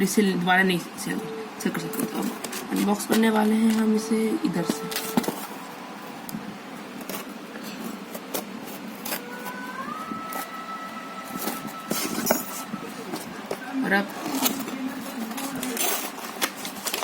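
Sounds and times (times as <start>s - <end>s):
cardboard package being torn open: 14.3s - 17.0s.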